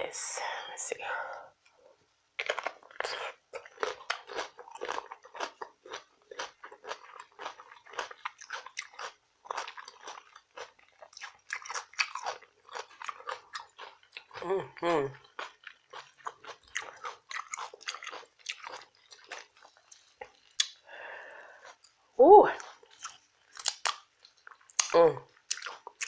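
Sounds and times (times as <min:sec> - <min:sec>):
crisp chewing crunches: 0:02.4 - 0:14.5, 0:15.1 - 0:20.8, 0:22.6 - 0:26.0.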